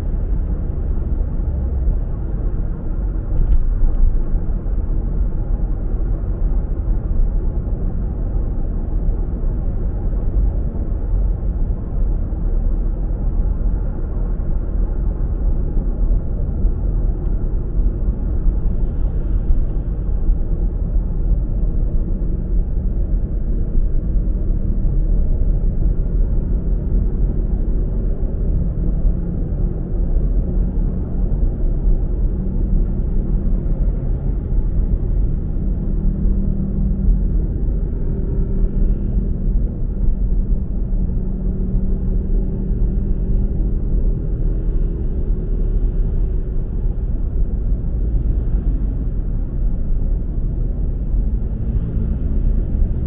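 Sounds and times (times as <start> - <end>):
car driving rumble: 0.0 - 53.0.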